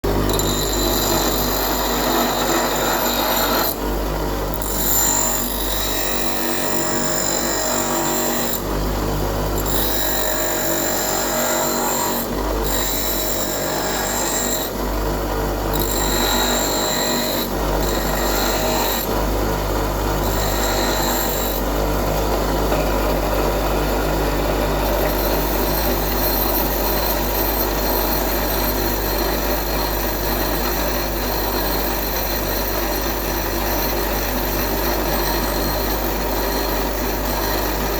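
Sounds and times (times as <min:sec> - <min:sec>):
grinder motor humming: 0:00.1 - 0:37.9
drill bit grinding on wheel: 0:00.3 - 0:03.8, 0:04.6 - 0:08.6, 0:09.6 - 0:14.8, 0:15.7 - 0:19.2, 0:20.2 - 0:21.8.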